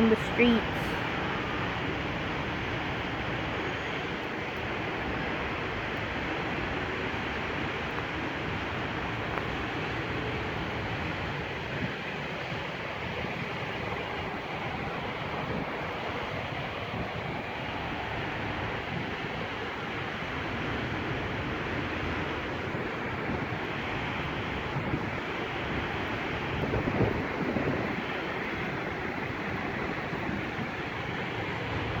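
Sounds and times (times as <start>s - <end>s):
strong wind buffeting microphone: 8.6s - 32.0s.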